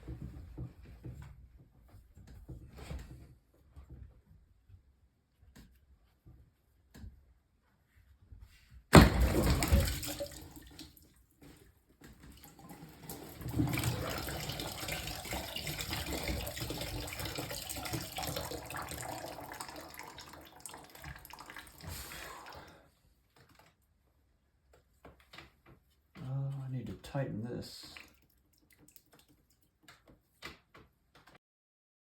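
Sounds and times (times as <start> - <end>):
water running from a tap: 9.0 - 11.0, 12.4 - 22.8, 27.8 - 29.5.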